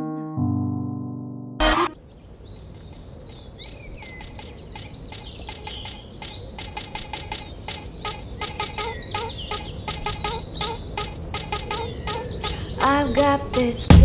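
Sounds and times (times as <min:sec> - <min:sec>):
birds chirping and calling: 0:01.9 - 0:14.0
steady outdoor hiss: 0:01.9 - 0:14.0
rhythmic clicking beat: 0:04.2 - 0:14.0.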